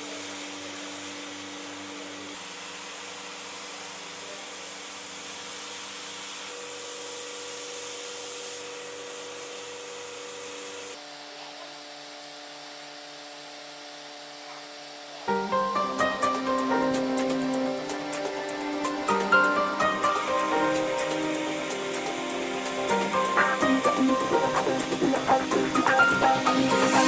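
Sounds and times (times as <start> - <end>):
motor hum: 15.3 - 27.0
welding machine airy hiss: 15.3 - 27.0.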